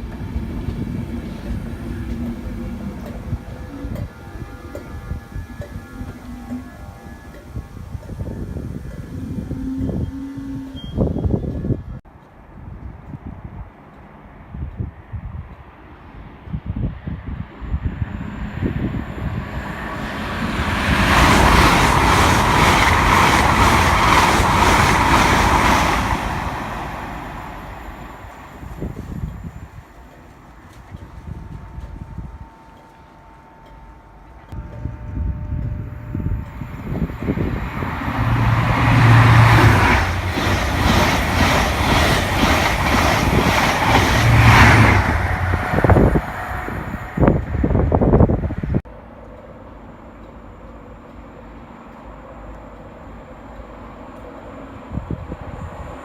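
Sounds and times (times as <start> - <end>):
train passing at speed: 0.0 - 56.0
train wheels beating: 18.0 - 33.0, 34.5 - 48.7
train wheels clattering: 36.4 - 46.5.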